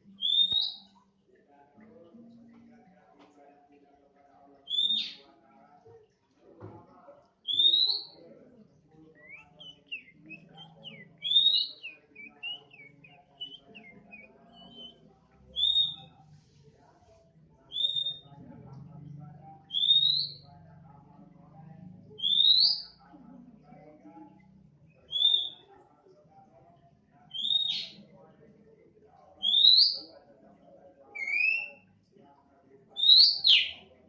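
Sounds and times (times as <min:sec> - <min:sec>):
bird chirping: 0:00.0 - 0:01.0, 0:07.4 - 0:08.2, 0:08.9 - 0:16.2, 0:17.6 - 0:18.4, 0:19.6 - 0:20.5, 0:22.1 - 0:23.0, 0:24.9 - 0:25.7, 0:27.3 - 0:28.0, 0:29.4 - 0:30.1.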